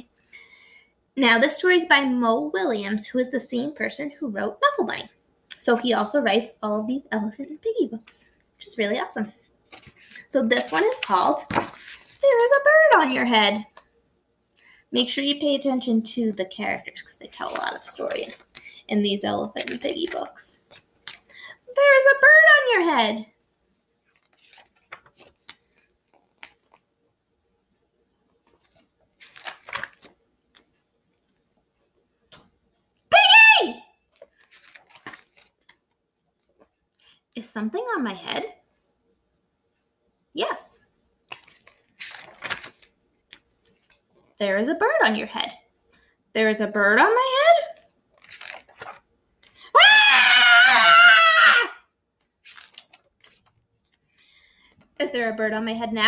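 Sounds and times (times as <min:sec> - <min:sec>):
book pages rustling: 0:09.5 - 0:12.2, 0:17.3 - 0:18.8, 0:19.4 - 0:21.3, 0:23.9 - 0:26.9, 0:28.2 - 0:32.5, 0:34.0 - 0:36.8, 0:41.3 - 0:44.4, 0:48.1 - 0:49.6, 0:52.1 - 0:55.0
woman screaming: 0:33.1 - 0:33.9, 0:49.8 - 0:51.8.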